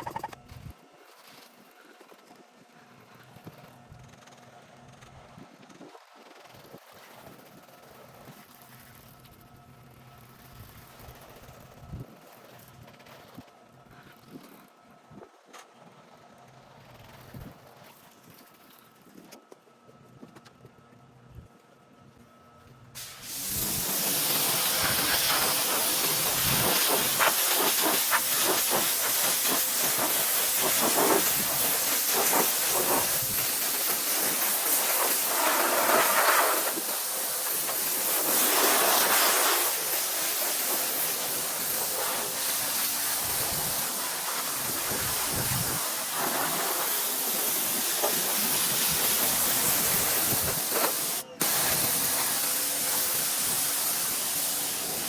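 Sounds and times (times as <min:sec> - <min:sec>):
pressure washer spraying siding: 0:23.0 - 0:55.0.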